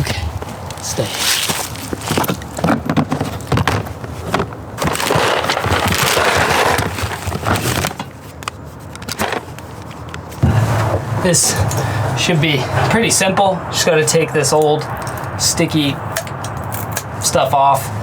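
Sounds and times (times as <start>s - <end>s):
knocks and clatter of handling: 0.0s - 11.9s.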